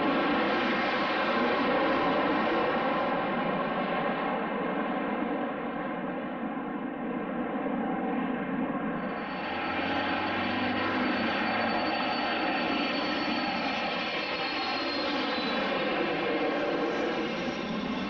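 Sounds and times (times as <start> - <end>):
jet engines roaring: 6.5 - 18.0
high whine falling in pitch: 9.0 - 15.8.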